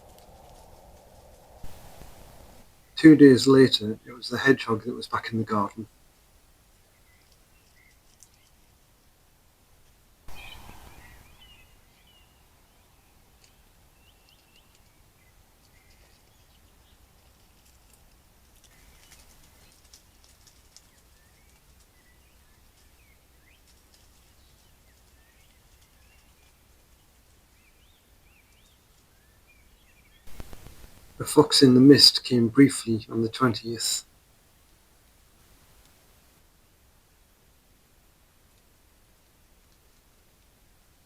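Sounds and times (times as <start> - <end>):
low steady hum: 0.0 - 7.4, 10.2 - 14.2
faint bird chirps: 6.8 - 8.7, 10.3 - 17.7
small clicks: 7.2 - 8.6
sudden loud noise: 10.3 - 11.8.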